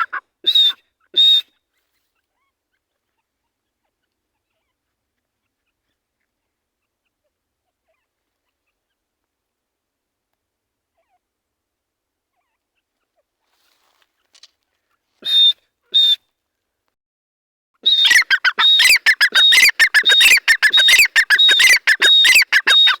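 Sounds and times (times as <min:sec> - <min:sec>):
francolin calling: 0:17.8 - 0:23.0.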